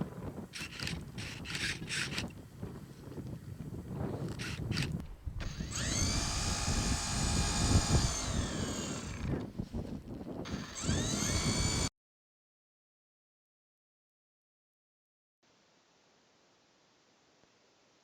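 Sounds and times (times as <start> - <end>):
small motor whining: 0.4 - 2.8, 4.1 - 11.9.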